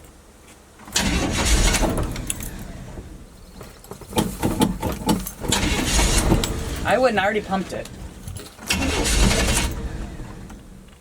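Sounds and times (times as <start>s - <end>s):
truck engine cranking: 0.8s - 11.0s
keys jangling: 8.2s - 8.6s.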